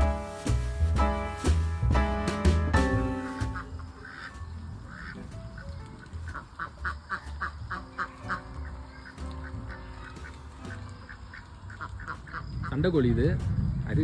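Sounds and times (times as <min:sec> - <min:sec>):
ducks quacking: 0:02.0 - 0:12.9.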